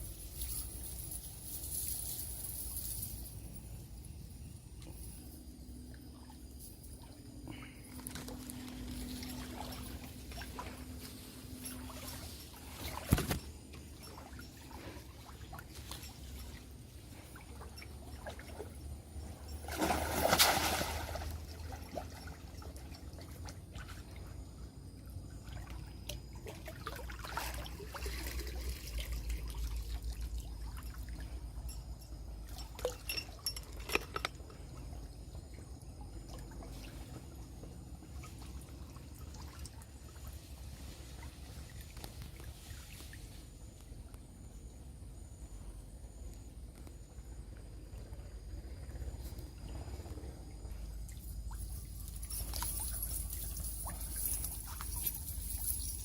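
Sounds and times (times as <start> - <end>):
water trickling and pouring: 5.0 - 24.2, 50.8 - 56.0.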